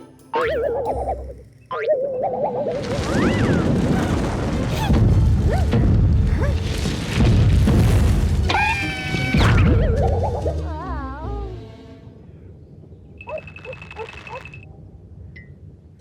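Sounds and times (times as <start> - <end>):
music: 0.0 - 1.7, 4.9 - 12.2
squeaky chirps: 0.0 - 3.5, 13.2 - 14.6
cartoon rumble: 8.5 - 11.5.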